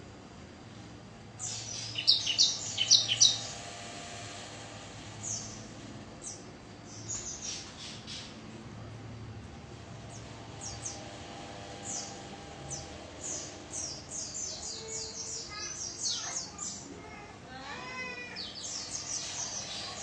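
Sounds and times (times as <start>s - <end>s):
faint steady hum: 0.0s - 20.0s
bird chirping: 1.4s - 3.6s, 5.2s - 8.4s, 10.0s - 11.2s, 11.8s - 16.9s, 18.1s - 20.0s.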